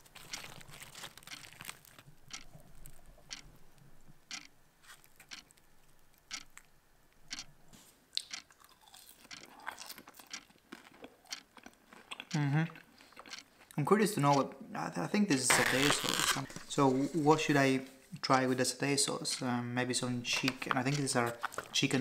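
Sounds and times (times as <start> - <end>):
person crunching chips: 0.0 - 3.1, 8.2 - 13.8.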